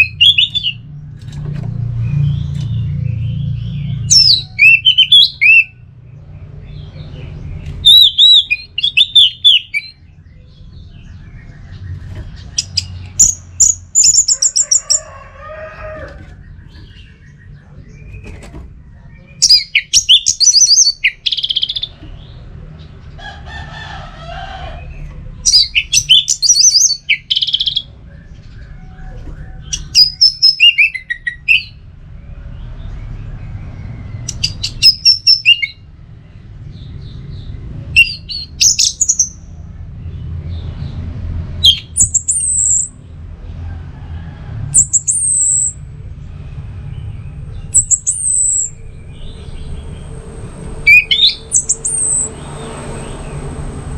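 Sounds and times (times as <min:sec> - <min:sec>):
thrush singing: 0:47.7 - 0:53.9.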